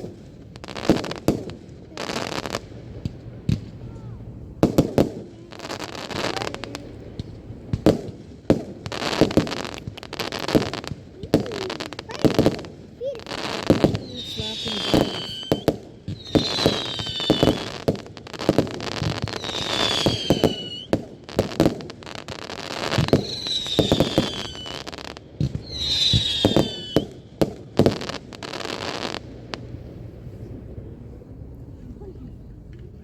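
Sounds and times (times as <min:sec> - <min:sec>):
fireworks bangs and crackling: 0:00.0 - 0:31.0
firework whistles sliding down: 0:13.3 - 0:17.8, 0:18.9 - 0:21.0, 0:22.8 - 0:27.1.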